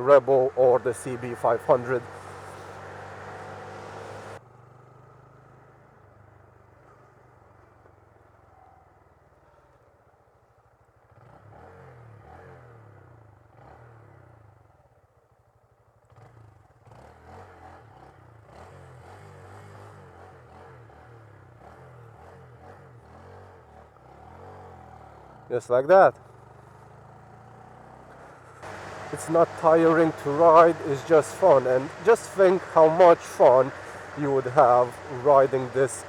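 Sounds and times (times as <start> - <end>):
motorcycle engine running: 0.0 - 4.4, 26.2 - 36.0.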